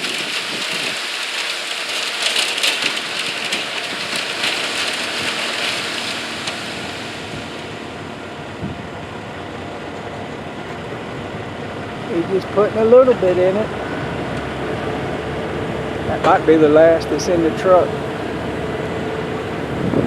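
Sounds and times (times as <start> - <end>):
wet concrete hissing down chute: 0.0 - 8.5, 16.1 - 20.0.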